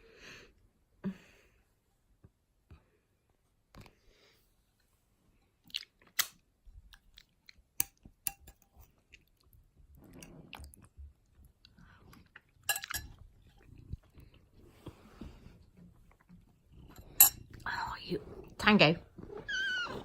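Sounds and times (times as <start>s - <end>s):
chewing: 5.6s - 17.7s
cutlery tapping on a plate: 7.8s - 8.7s.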